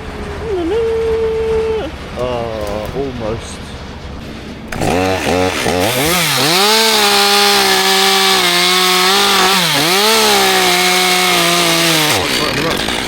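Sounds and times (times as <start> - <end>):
two-stroke chainsaw revving: 4.7 - 13.0.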